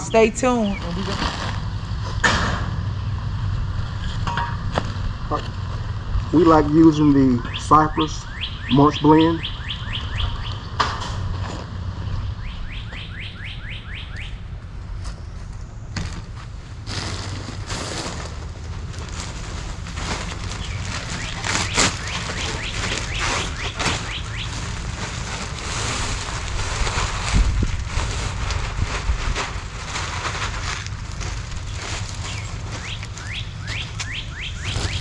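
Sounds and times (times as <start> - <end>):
rustling and crunching: 0.0 - 8.1, 14.5 - 35.0
bird chirping: 7.0 - 10.8, 12.2 - 14.4, 20.4 - 24.7, 32.2 - 35.0.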